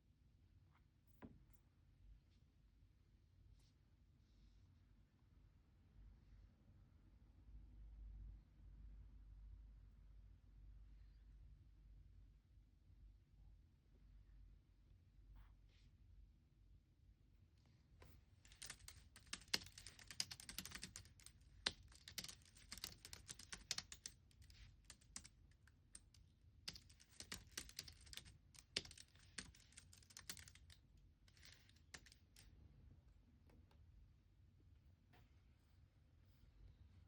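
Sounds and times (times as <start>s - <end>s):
typing on a computer keyboard: 18.5s - 32.4s.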